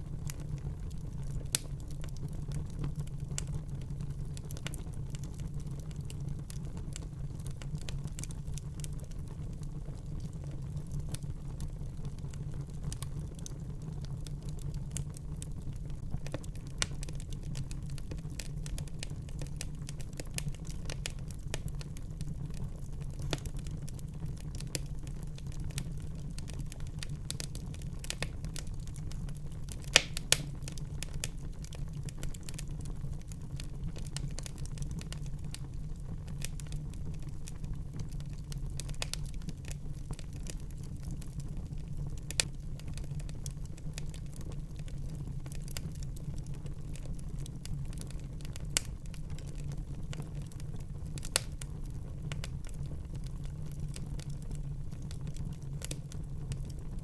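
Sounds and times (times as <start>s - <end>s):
wood fire crackling: 0.0s - 57.0s
sharp pops from fire: 23.0s - 23.7s, 24.4s - 33.3s, 47.0s - 51.8s, 55.8s - 56.2s.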